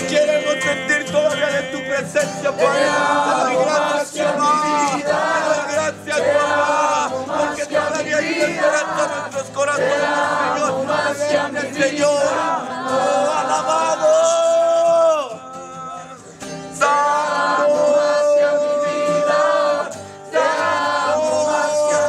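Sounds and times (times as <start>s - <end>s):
group singing a worship song: 0.0s - 14.8s, 16.6s - 22.0s.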